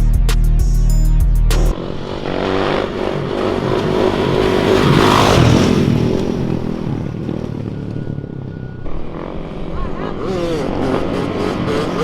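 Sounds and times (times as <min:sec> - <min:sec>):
music with heavy beat: 0:00.0 - 0:01.7
car engine revving hard: 0:01.6 - 0:06.9, 0:09.2 - 0:12.0.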